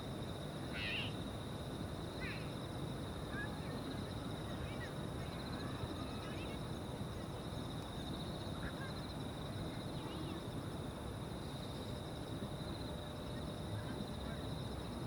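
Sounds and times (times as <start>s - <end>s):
insects trilling: 0.0s - 15.0s
faint short bird calls: 0.7s - 1.2s.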